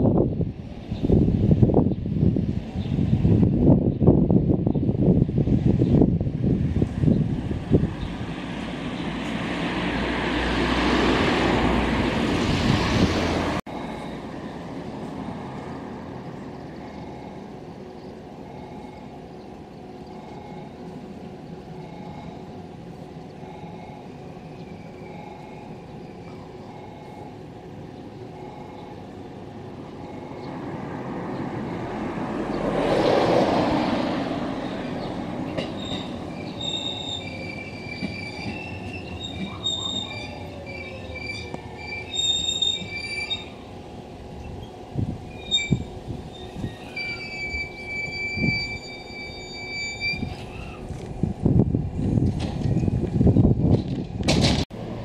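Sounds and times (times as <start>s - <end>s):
wind rumbling on microphone: 0.0s - 13.6s, 42.9s - 54.8s
electric train approaching: 0.0s - 55.0s
steady outdoor hum: 0.0s - 55.0s
train wheels squealing: 35.5s - 43.7s, 44.4s - 50.9s.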